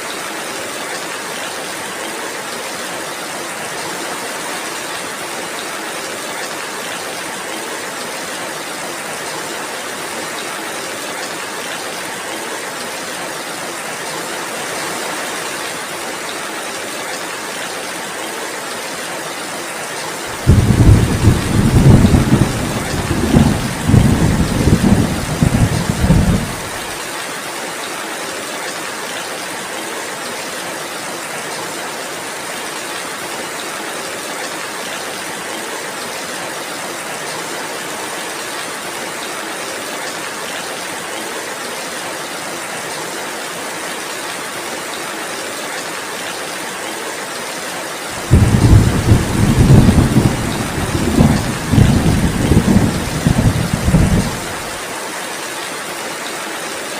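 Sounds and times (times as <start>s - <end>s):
heavy rain falling: 0.0s - 56.9s
thunder rumbling: 20.4s - 26.9s, 48.2s - 54.7s.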